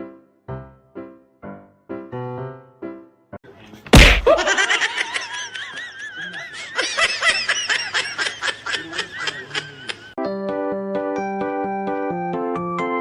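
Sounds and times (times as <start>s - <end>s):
piano music: 0.0s - 3.4s
person laughing hard: 4.0s - 10.2s.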